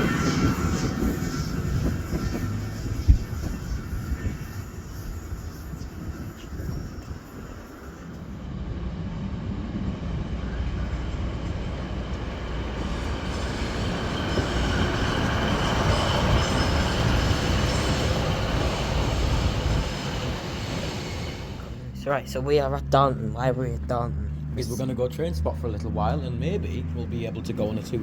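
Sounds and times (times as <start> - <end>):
high-pitched wheel squeal: 0.0 - 8.4, 12.9 - 21.7
train rumbling on rails: 0.0 - 28.0.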